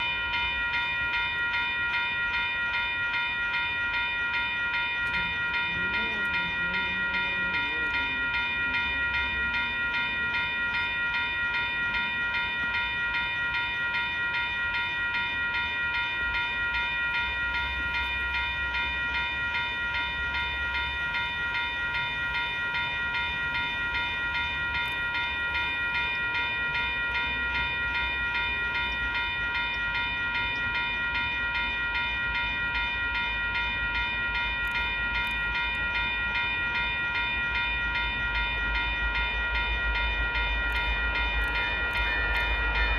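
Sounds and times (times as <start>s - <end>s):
level-crossing warning bell: 0.0s - 42.9s
low rumble: 39.3s - 42.9s.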